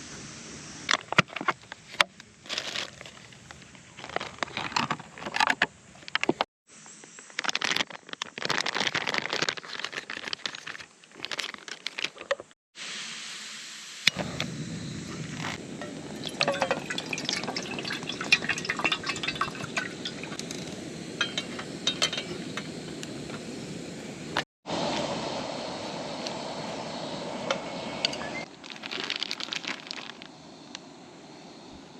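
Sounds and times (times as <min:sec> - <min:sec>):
small hard items clinking: 0:02.4 - 0:06.4, 0:07.3 - 0:12.5, 0:15.4 - 0:22.8, 0:28.5 - 0:30.3
liquid pouring: 0:15.8 - 0:22.4
steady rushing noise: 0:19.5 - 0:28.5.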